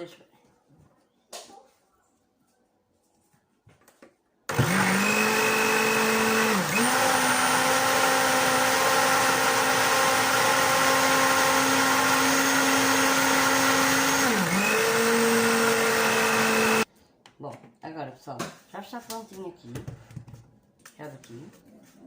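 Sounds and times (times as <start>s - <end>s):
countertop blender running: 4.5s - 16.9s.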